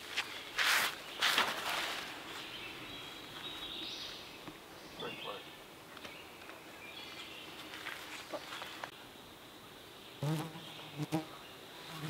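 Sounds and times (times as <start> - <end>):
flying insect buzzing: 10.2 - 12.0.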